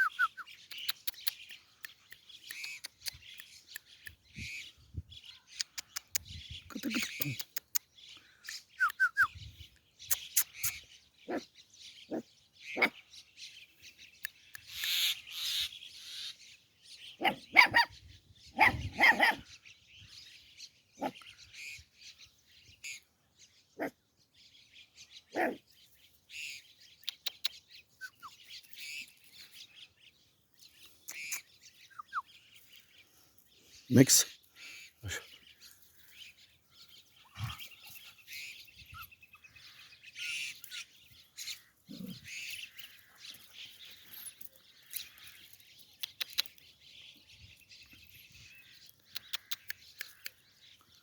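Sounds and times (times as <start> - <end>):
birds chirping: 0.0 - 51.0
dog barking: 17.2 - 18.0, 18.6 - 19.4, 25.3 - 25.6.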